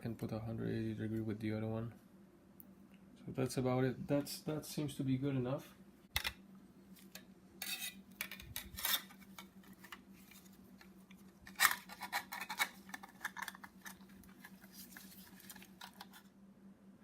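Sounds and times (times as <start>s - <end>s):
metal clicks and scrapes: 7.1s - 10.4s, 11.4s - 16.3s.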